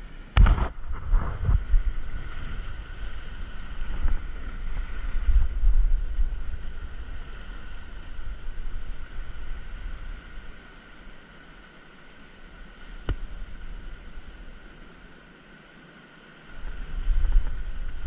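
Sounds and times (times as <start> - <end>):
wind gusting over microphone: 0.0 - 11.1, 16.5 - 18.0
ocean surf: 0.0 - 18.0.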